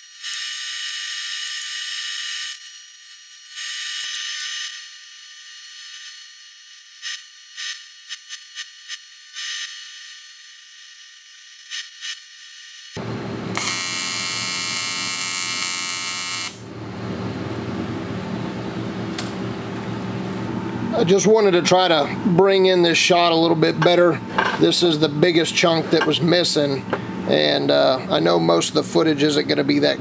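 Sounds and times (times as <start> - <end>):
welding arc buzzing: 0.0 - 20.5.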